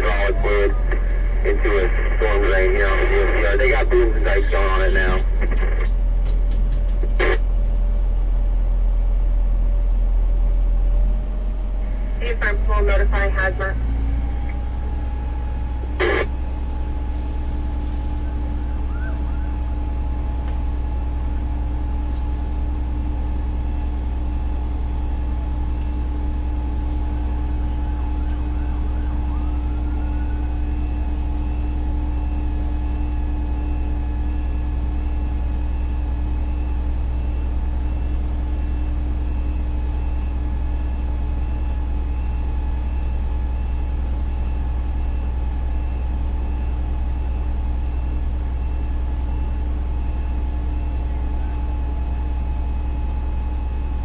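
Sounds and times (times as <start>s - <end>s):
diesel engine idling: 0.0s - 42.1s.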